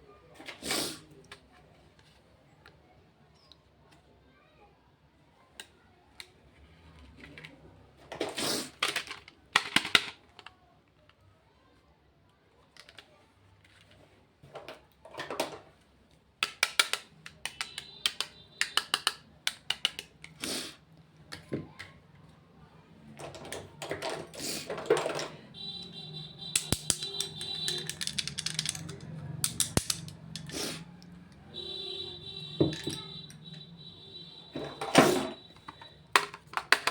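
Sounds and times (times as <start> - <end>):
taps and clicks on plastic cases: 16.4 - 20.4, 26.4 - 30.5, 35.5 - 36.9.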